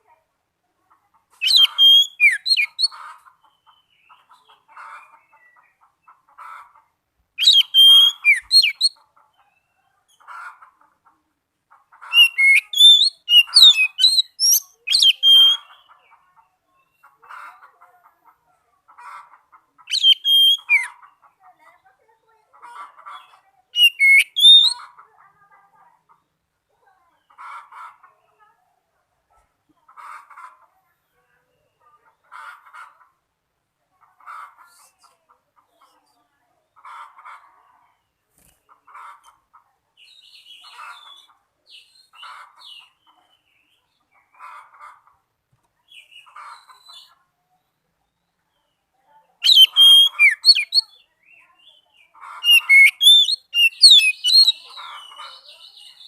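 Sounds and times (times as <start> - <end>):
bird singing whistles and chirps: 1.4 - 2.9, 7.4 - 9.0, 12.2 - 15.8, 19.9 - 20.9, 23.8 - 24.8, 49.4 - 51.0, 52.4 - 54.6.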